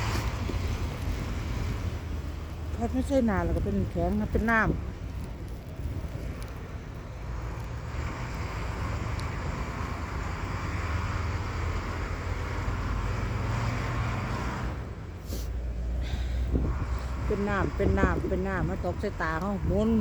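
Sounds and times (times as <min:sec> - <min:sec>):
hiss of blown snow: 0:15.2 - 0:16.2
strong wind on microphone: 0:16.4 - 0:20.0.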